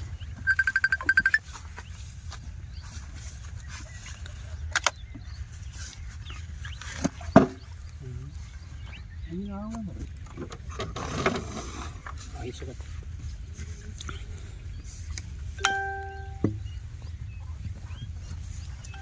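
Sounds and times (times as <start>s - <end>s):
steady low rumble: 12.0s - 19.0s.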